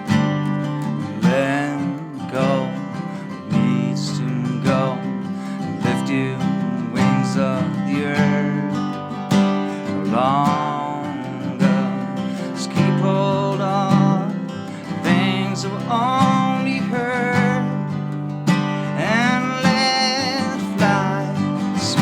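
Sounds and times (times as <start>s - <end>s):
strummed acoustic guitar: 0.0s - 22.0s
sliding melody line: 13.5s - 22.0s.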